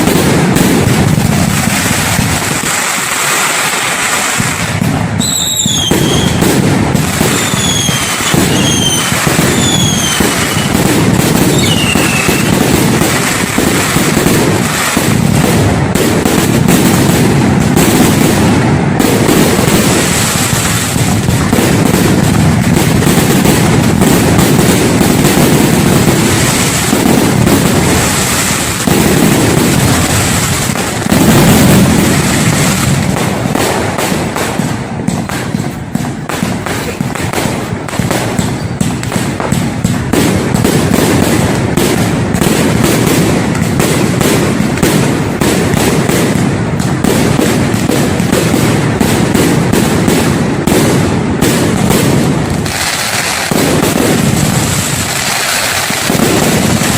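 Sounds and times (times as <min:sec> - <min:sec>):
fireworks bursts and crackling: 0:00.0 - 0:56.9.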